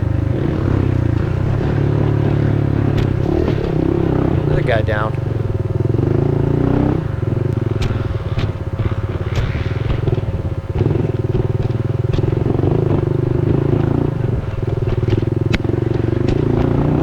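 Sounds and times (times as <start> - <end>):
bike clattering over roots: 0.0 - 17.0
dirt bike engine under throttle: 0.0 - 17.0.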